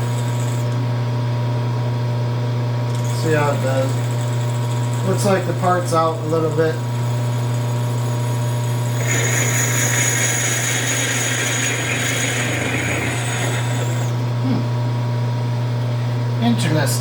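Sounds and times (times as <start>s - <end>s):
lathe humming: 0.0s - 0.8s, 2.9s - 14.4s
tool cutting metal with whine: 0.0s - 0.9s, 2.9s - 14.4s.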